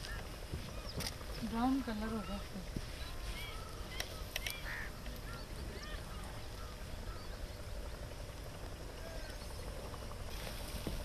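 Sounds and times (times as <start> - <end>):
birds chirping: 0.0 - 11.0
sharp clicks: 3.9 - 5.2.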